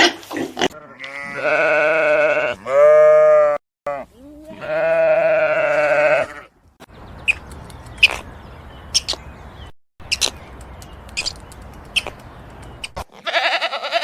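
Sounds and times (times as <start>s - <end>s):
sheep or goat bleating: 0.7s - 6.5s, 13.1s - 14.0s.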